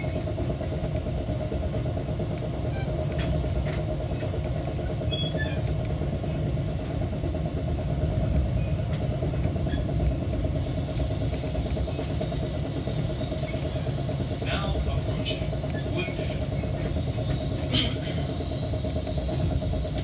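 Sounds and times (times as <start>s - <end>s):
train rumble from inside car: 0.0s - 20.0s.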